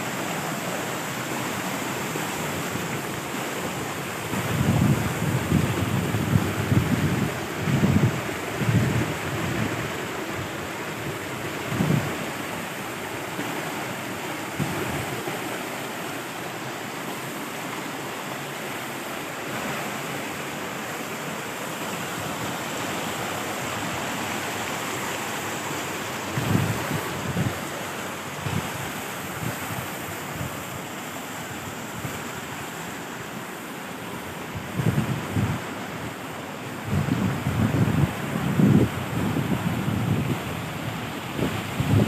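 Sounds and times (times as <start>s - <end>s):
wind buffeting microphone: 4.1s - 12.6s, 14.5s - 15.5s, 25.9s - 30.8s, 34.5s - 35.7s, 36.8s - 42.0s.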